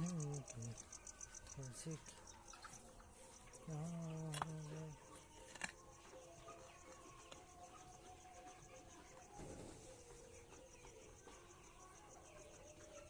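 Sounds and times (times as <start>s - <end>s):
high-pitched pulsing chirping: 0.0s - 5.2s.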